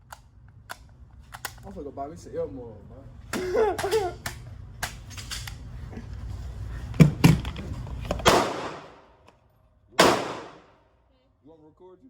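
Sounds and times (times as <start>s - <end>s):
gunshots with echoing tail: 8.2s - 9.0s, 10.0s - 10.8s.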